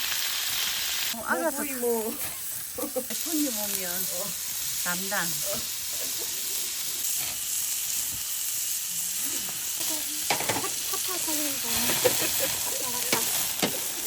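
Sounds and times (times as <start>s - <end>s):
fire sizzling hiss: 0.0s - 14.0s
fire pops and cracks: 10.3s - 10.8s, 11.7s - 14.0s.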